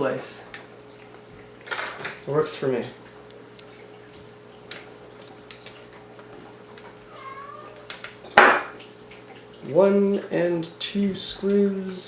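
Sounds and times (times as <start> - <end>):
cat meowing: 7.1 - 7.9.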